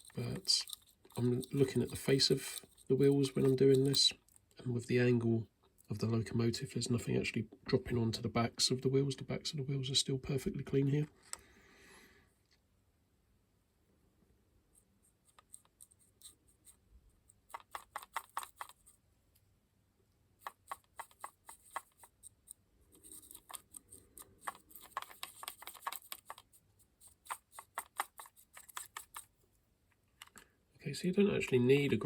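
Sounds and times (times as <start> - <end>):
small brush scrubbing: 0.0 - 4.1, 14.8 - 19.0, 20.4 - 29.6.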